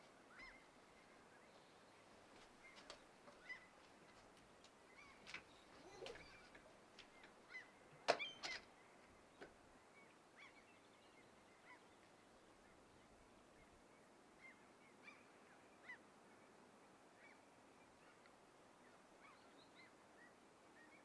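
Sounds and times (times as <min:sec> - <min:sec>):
faint steady hiss: 0:00.0 - 0:21.0
birds calling: 0:04.9 - 0:12.0.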